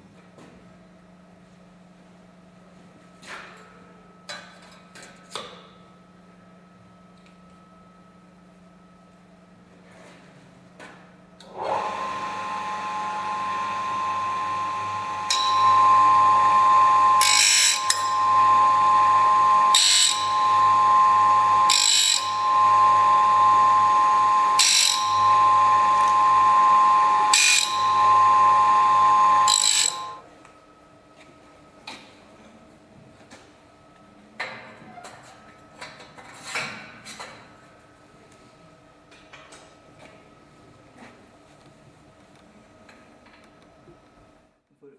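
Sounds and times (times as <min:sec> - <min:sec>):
power tool whining: 0:11.4 - 0:30.2
harsh grinding of blade: 0:13.5 - 0:30.2.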